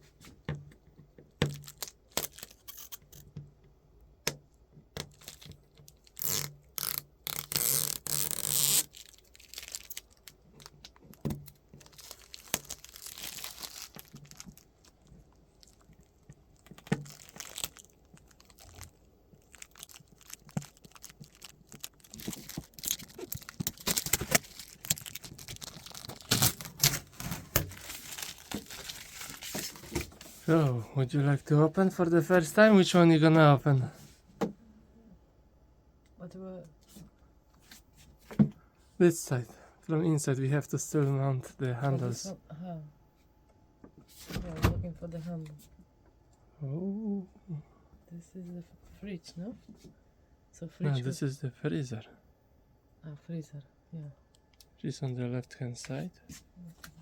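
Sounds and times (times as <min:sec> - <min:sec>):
packaging tearing: 0:01.5 - 0:03.2, 0:05.1 - 0:14.9, 0:16.6 - 0:30.0.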